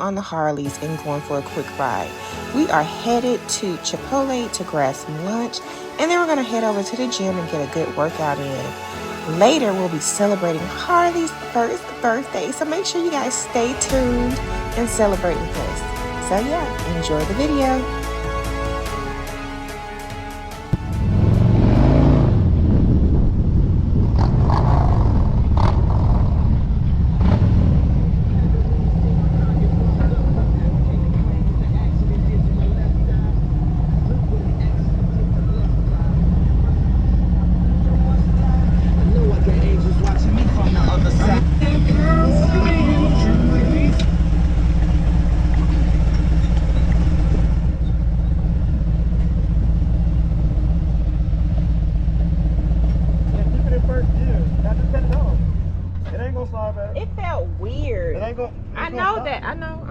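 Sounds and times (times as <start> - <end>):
motorcycle engine throbbing: 20.6 - 59.9
road and wind noise: 20.7 - 59.9.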